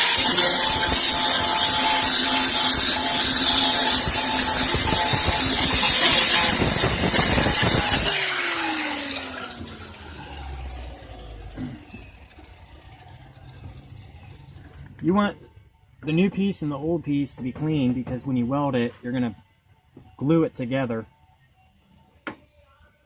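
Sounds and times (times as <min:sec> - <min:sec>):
power grinder on sheet metal: 0:00.0 - 0:14.7
grinder spinning down whine: 0:00.0 - 0:14.8.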